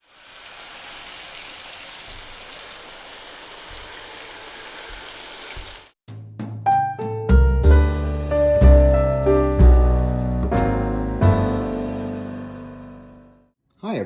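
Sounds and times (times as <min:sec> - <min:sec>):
steady hiss: 0:00.0 - 0:05.8
piano notes: 0:06.5 - 0:13.5.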